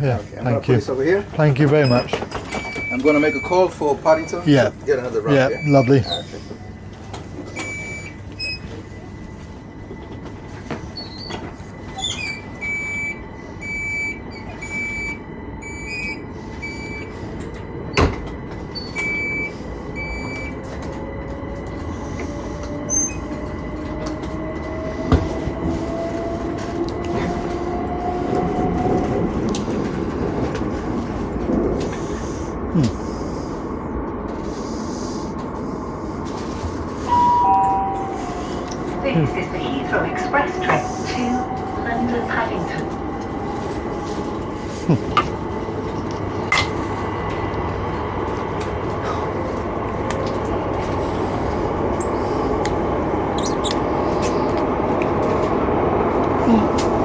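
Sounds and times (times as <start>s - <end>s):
train rumble: 0.0s - 57.0s
door closing beeps: 1.8s - 4.4s, 5.5s - 6.1s, 7.6s - 8.7s, 12.0s - 17.1s, 18.8s - 20.6s, 37.1s - 38.2s
electric train motor whine: 2.1s - 56.3s.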